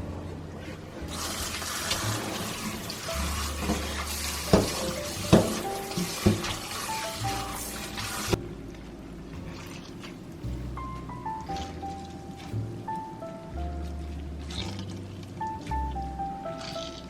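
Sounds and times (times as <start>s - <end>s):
tap water running into sink: 1.1s - 8.4s
dishes knocking: 4.5s - 6.6s.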